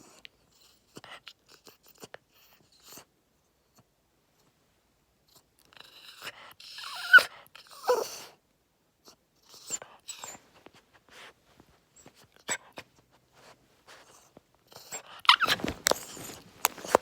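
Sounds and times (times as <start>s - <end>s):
dog whining: 5.7s - 8.4s, 9.0s - 10.4s, 13.9s - 17.0s
dog tapping and scratching: 15.4s - 17.0s.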